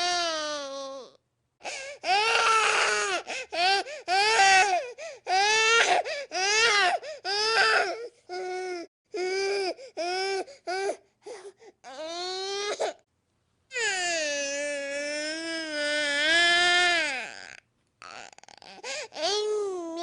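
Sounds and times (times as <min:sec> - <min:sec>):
infant crying: 0:00.0 - 0:13.0, 0:13.7 - 0:20.0
infant quick breaths: 0:01.6 - 0:02.0, 0:09.8 - 0:11.8, 0:18.8 - 0:19.2.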